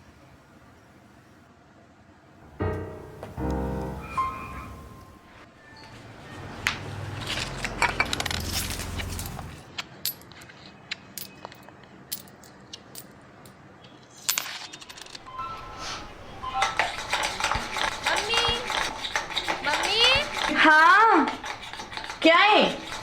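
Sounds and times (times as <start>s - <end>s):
metal utensils and dishes clinking: 7.1s - 9.6s, 14.3s - 23.0s.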